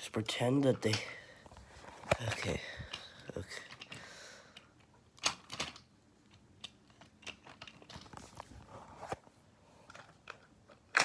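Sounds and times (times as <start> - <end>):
plastic toy trains clicking: 2.1 - 8.2, 9.9 - 11.0.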